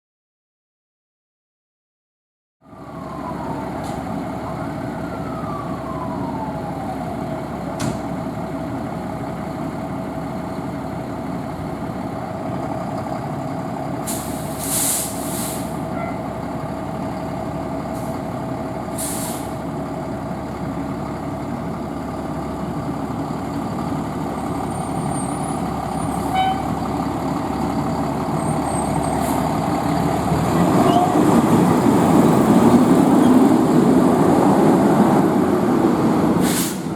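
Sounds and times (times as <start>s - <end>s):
fire engine running: 2.6s - 36.9s
siren winding down: 2.7s - 7.6s
air brakes hissing: 14.0s - 16.2s, 18.9s - 19.7s, 28.4s - 29.6s, 36.4s - 36.9s.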